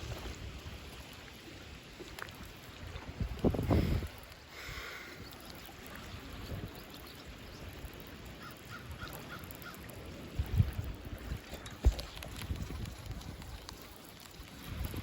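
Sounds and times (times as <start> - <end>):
water noise: 0.0 - 15.0
wind: 0.0 - 15.0.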